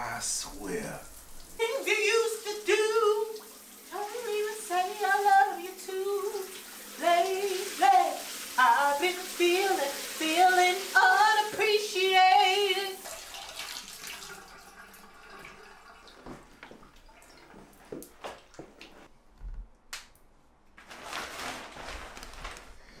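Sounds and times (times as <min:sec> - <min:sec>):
shower spray hissing: 0:00.0 - 0:14.1
woman singing: 0:01.6 - 0:13.1.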